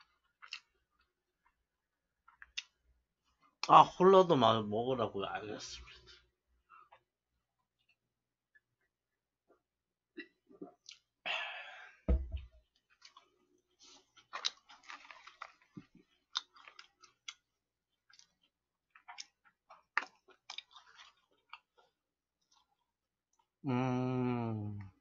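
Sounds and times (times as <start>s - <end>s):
thump: 12.1s - 12.5s
crunching fried chicken: 13.0s - 21.8s.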